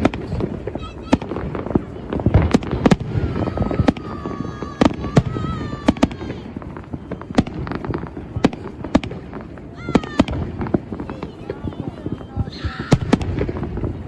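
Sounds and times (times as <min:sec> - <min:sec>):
fireworks bangs and cracks: 0:00.0 - 0:14.0
whistling firework: 0:00.0 - 0:14.0.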